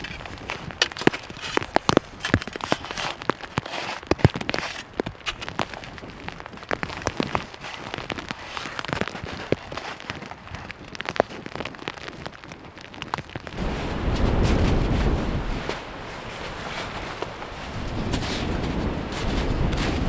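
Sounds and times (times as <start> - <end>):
wood fire crackling and popping: 0.0 - 15.9
wind rumble on microphone: 4.7 - 20.0.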